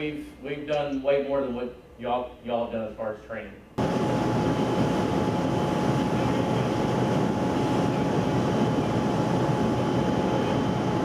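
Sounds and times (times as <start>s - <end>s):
constant high whine: 3.7s - 11.0s
loud engine noise: 3.8s - 11.0s.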